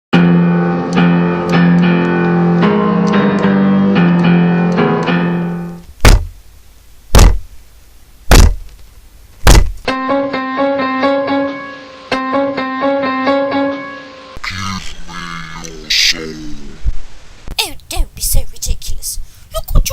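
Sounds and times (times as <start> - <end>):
piano music: 0.2 - 5.8, 9.9 - 14.5
knocks on a door: 6.0 - 6.4, 7.1 - 7.4, 8.3 - 8.6, 9.4 - 9.8.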